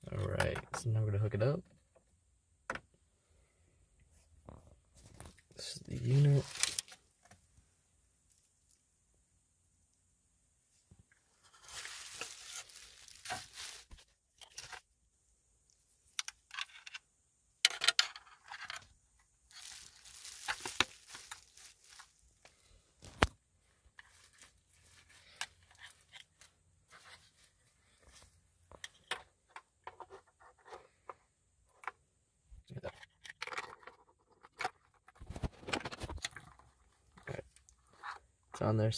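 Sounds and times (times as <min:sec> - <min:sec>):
plastic tearing and crinkling: 0:06.0 - 0:07.0, 0:11.5 - 0:14.8, 0:19.5 - 0:22.3.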